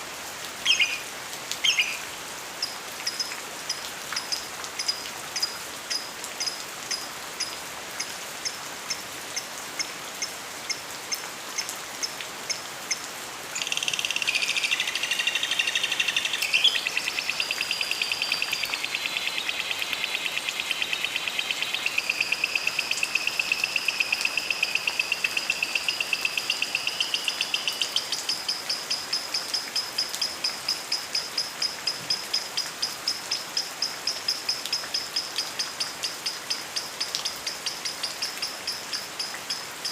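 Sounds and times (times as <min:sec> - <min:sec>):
rain hiss: 0:00.0 - 0:39.9.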